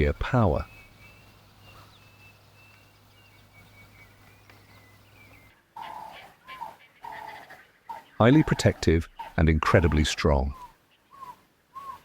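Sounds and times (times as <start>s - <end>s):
animal calls: 5.8s - 12.0s.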